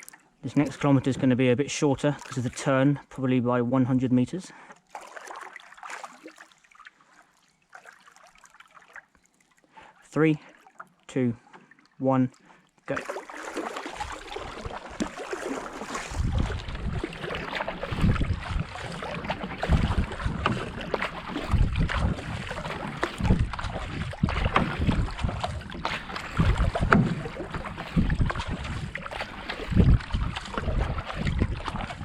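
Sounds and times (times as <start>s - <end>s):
kayak paddle strokes: 0.0s - 2.9s, 4.6s - 32.0s
wind rumbling on microphone: 15.8s - 32.0s.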